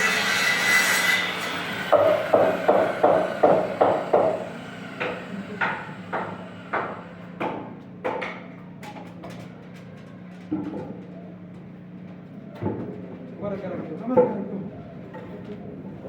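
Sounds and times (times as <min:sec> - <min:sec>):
hammer blows on wood: 0:01.2 - 0:08.4.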